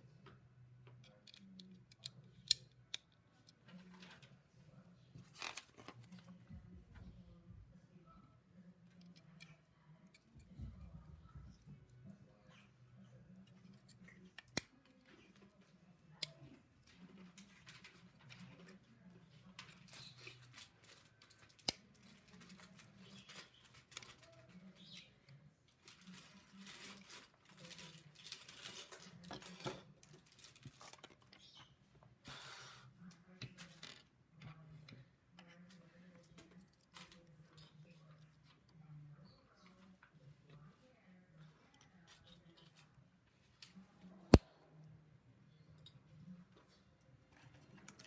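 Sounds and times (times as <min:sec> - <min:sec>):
rustling and clatter of plastic pieces: 0:25.8 - 0:31.3.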